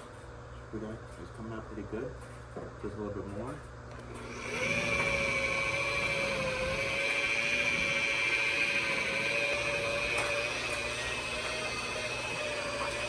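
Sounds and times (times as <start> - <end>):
electric buffer whining: 4.2 - 13.0.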